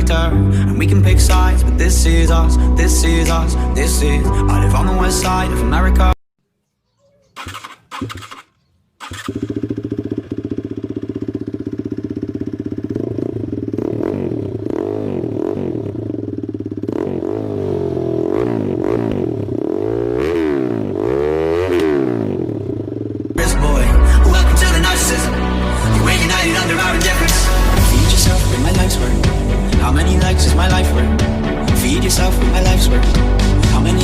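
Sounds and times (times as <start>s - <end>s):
starter motor bursts: 7.4s - 10.8s
motorcycle engine revving: 7.4s - 34.0s.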